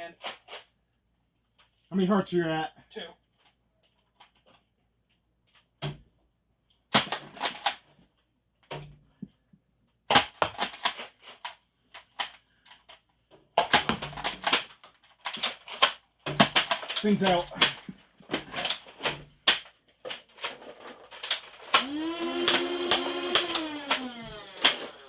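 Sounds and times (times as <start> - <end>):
toy blasters clicking and firing: 7.0 - 7.8, 10.1 - 12.4, 13.6 - 25.0.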